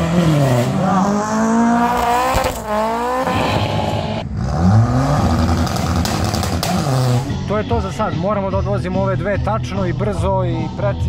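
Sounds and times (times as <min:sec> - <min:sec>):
car engines revving: 0:00.0 - 0:07.5.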